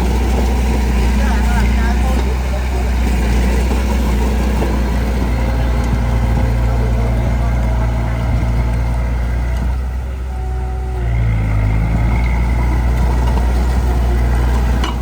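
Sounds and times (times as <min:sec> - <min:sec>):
heavy diesel engine under load: 0:00.0 - 0:15.0.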